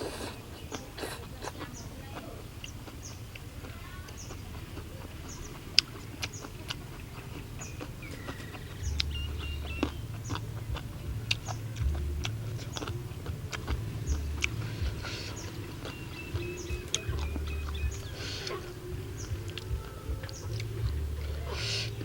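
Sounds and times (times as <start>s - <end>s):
wet chewing smacks: 0.0s - 22.0s
low handling thuds: 8.1s - 22.0s.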